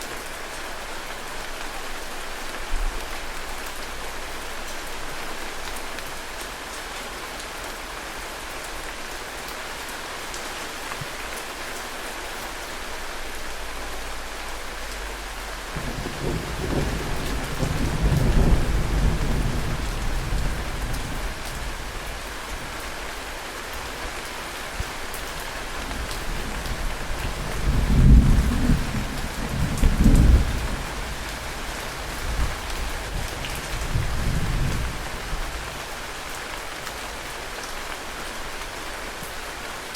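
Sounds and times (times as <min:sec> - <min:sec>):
heavy rain hissing: 0:00.0 - 0:39.9
rolling thunder: 0:15.7 - 0:22.1, 0:26.0 - 0:35.6.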